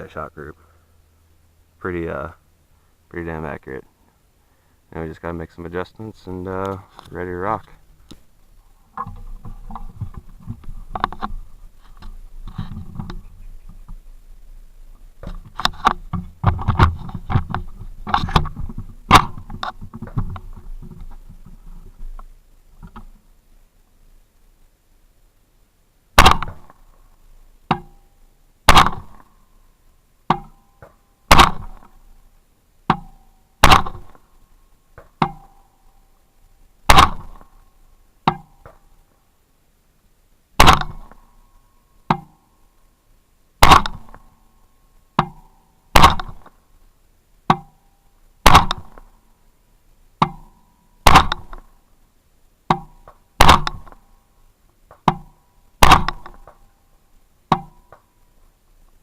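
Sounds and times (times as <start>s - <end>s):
rifle single shots: 19.1s - 19.5s, 26.2s - 26.8s, 28.7s - 29.3s, 31.3s - 32.0s, 33.6s - 34.2s, 36.9s - 37.5s, 40.6s - 41.2s, 43.6s - 44.3s, 45.9s - 46.6s, 48.4s - 49.1s, 51.0s - 51.7s, 53.4s - 54.0s, 55.8s - 56.5s
distant gunshots: 26.2s - 26.8s, 28.7s - 29.2s, 31.3s - 31.8s, 33.6s - 34.2s, 36.9s - 37.5s, 40.6s - 41.2s, 43.6s - 44.2s, 46.0s - 46.5s, 48.4s - 49.0s, 51.0s - 51.6s, 53.4s - 53.9s, 55.8s - 56.4s.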